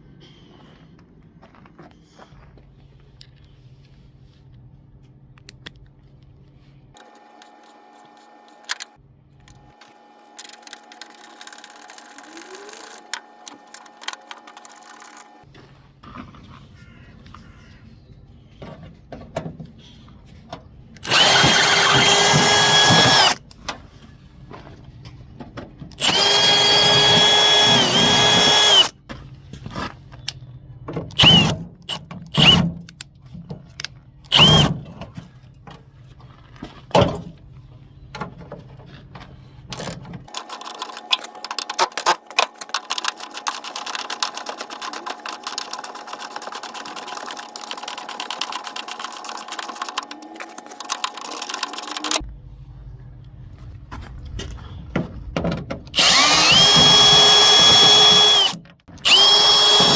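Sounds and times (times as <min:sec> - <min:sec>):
power drill running: 0:21.0 - 0:23.4, 0:26.0 - 0:28.9, 0:31.2 - 0:32.6, 0:34.3 - 0:34.7, 0:56.0 - 0:59.9.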